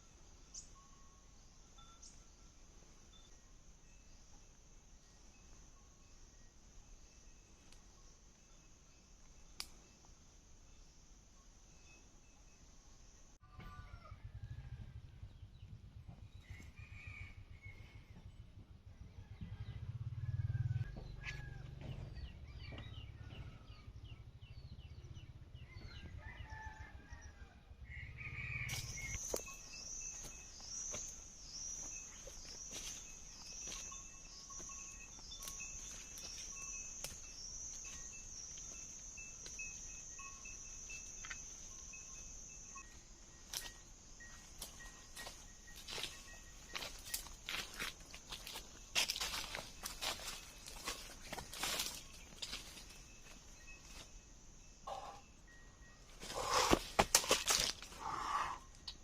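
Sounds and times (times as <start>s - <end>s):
pulsing insect drone: 28.5s - 58.9s
small birds chirping: 28.7s - 56.8s.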